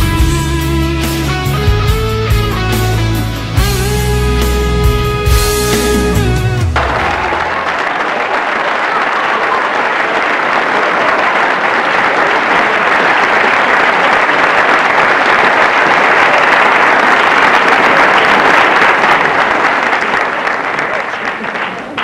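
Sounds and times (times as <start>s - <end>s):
audience applauding: 5.2s - 22.0s.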